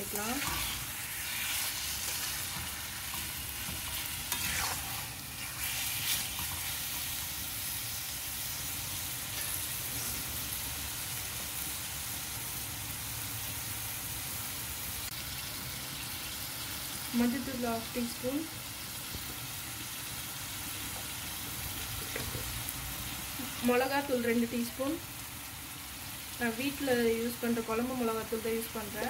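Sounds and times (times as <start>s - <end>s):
chicken sizzling in oil: 0.0s - 29.0s
metal spatula scraping pan: 0.2s - 6.7s.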